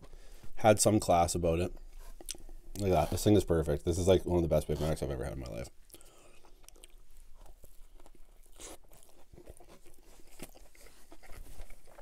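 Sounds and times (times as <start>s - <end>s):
wet chewing clicks and smacks: 2.2s - 2.9s, 5.4s - 12.0s.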